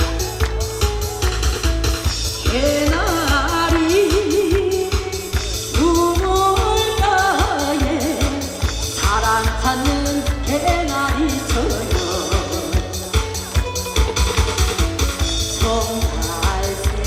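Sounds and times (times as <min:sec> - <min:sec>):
backing track with steady beat: 0:00.0 - 0:17.0
woman singing: 0:02.3 - 0:13.0, 0:15.3 - 0:17.0.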